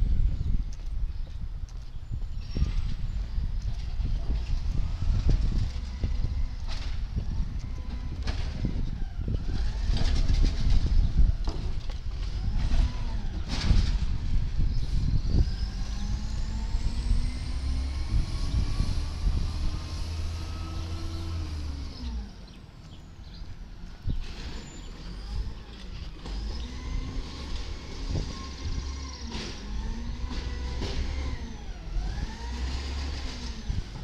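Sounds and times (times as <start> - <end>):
truck diesel engine revving: 15.4 - 22.5, 24.2 - 34.0.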